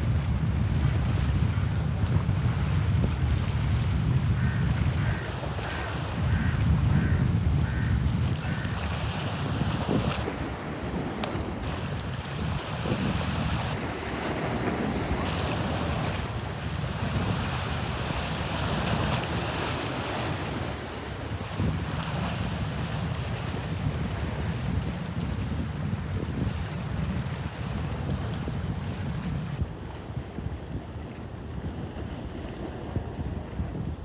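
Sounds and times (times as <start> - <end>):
wind buffeting microphone: 0.0 - 34.0
sea waves lapping: 3.3 - 22.3.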